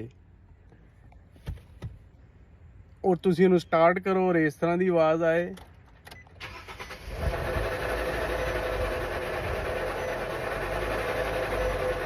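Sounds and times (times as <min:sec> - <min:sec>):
held whining tone: 0:06.7 - 0:12.0
transmission mechanical noise: 0:07.2 - 0:12.0.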